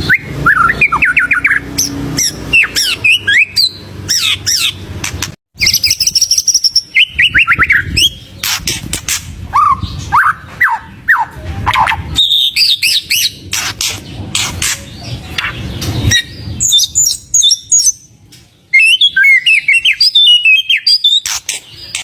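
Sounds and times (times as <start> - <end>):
bird singing whistles and trills: 0.0 - 4.8, 5.6 - 8.8, 9.5 - 14.0, 14.9 - 18.1, 18.7 - 22.0.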